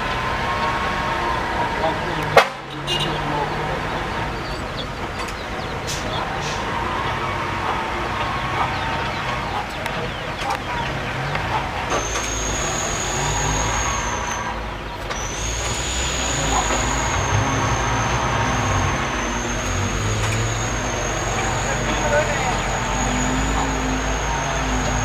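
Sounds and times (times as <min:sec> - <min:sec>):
diesel truck engine running: 0:00.0 - 0:25.0
high-pitched whine: 0:11.9 - 0:25.0.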